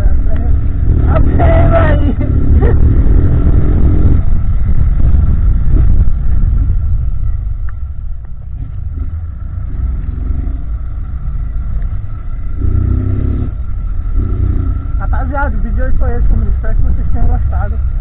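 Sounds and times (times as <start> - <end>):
motorcycle engine rumbling: 0.0 - 18.0.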